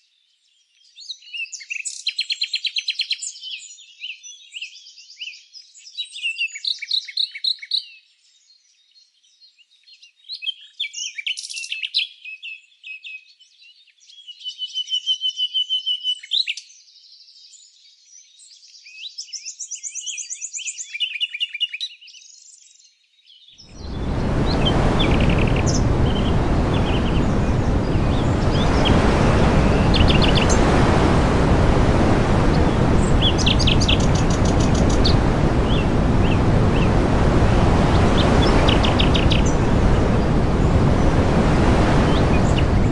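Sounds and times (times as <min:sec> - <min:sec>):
loud steady rushing noise: 0:23.7 - 0:42.9.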